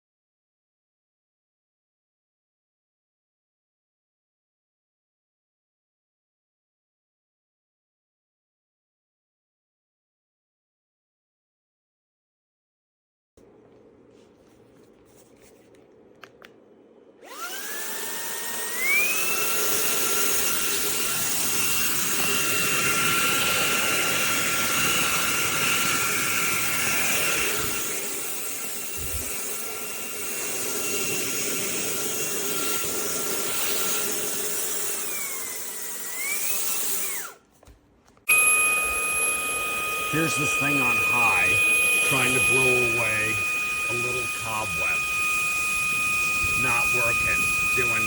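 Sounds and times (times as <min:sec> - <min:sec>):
handheld vacuum motor whine: 0:17.2 - 0:37.5, 0:38.2 - 0:48.0.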